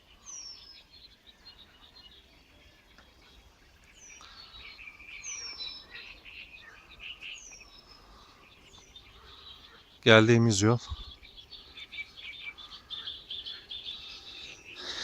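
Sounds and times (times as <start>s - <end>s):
birds warbling chatter: 0.0s - 15.0s.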